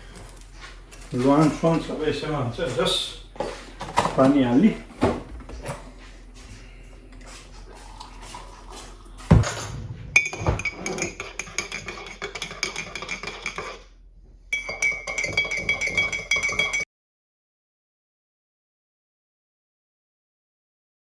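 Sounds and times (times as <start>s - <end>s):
spoon clinking in a cup: 10.2s - 13.8s, 14.5s - 16.8s.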